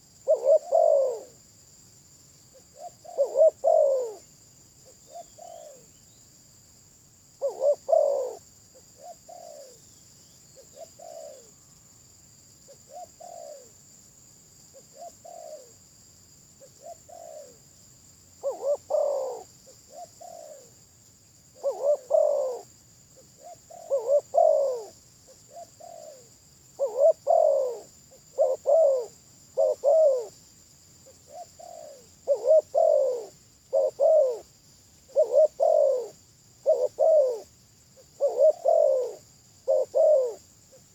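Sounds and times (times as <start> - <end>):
dove cooing: 0.0 - 1.4, 2.5 - 5.9, 7.4 - 8.4, 9.0 - 9.8, 10.6 - 11.6, 12.9 - 13.7, 14.8 - 15.7, 16.6 - 17.6, 18.4 - 20.8, 21.6 - 30.4, 31.2 - 34.5, 35.1 - 40.4
steady high hiss: 0.0 - 40.9.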